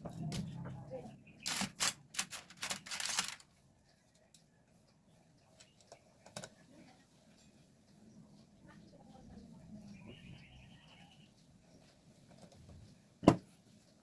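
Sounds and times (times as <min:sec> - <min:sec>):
small parts clicking and rattling: 0:01.4 - 0:03.5.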